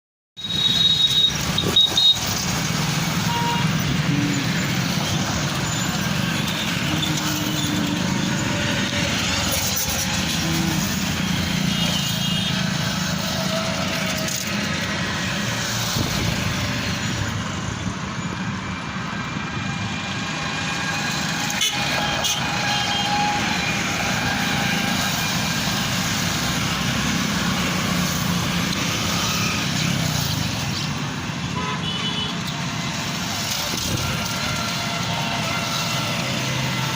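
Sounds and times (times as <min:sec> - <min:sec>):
vehicle horns: 0:00.4 - 0:14.7, 0:21.3 - 0:26.2, 0:31.4 - 0:32.8, 0:33.4 - 0:36.9
road traffic: 0:00.4 - 0:36.9.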